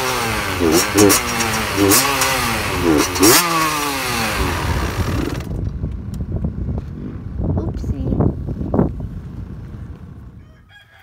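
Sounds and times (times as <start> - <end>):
dirt bike engine revving: 0.0 - 5.7.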